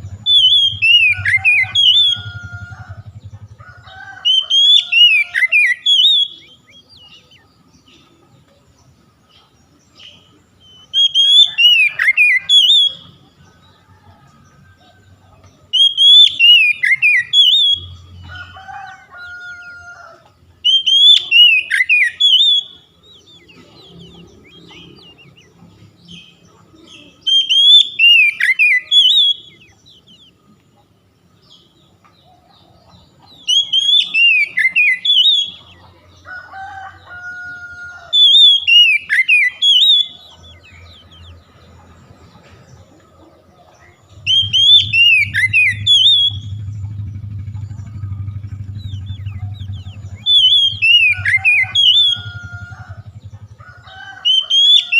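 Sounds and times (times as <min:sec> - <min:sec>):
bird singing whistled phrases: 0:00.2 - 0:02.4, 0:04.3 - 0:07.5, 0:10.6 - 0:13.2, 0:15.7 - 0:18.0, 0:20.6 - 0:25.5, 0:27.0 - 0:30.3, 0:33.4 - 0:35.7, 0:38.1 - 0:41.0, 0:44.2 - 0:46.6, 0:48.9 - 0:52.4, 0:54.3 - 0:54.9.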